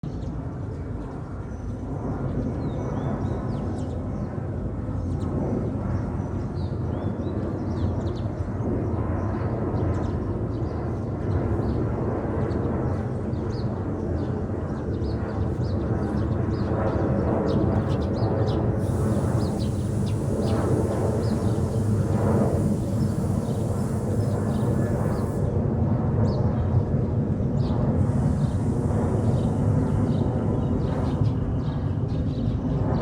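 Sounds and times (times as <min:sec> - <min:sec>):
distant jet airliner rumble: 0:00.0 - 0:33.0
small birds chirping: 0:17.4 - 0:25.4.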